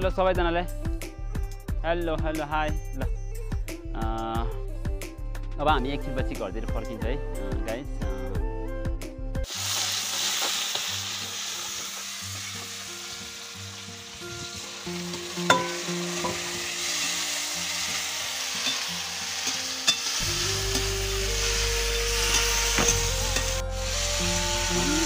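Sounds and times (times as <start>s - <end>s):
food sizzling in hot oil: 9.4s - 25.0s
metal spatula clinking on pan: 15.5s - 16.4s.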